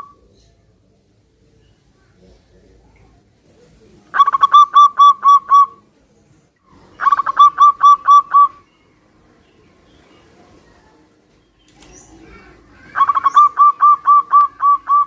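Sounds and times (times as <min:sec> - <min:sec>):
dove cooing: 0:02.2 - 0:05.9, 0:06.8 - 0:08.6, 0:12.0 - 0:15.0.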